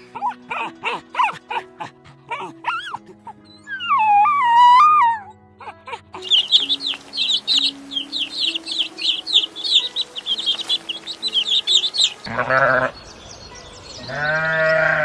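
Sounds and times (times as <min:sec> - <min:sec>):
chickens peeping: 0:06.2 - 0:14.8.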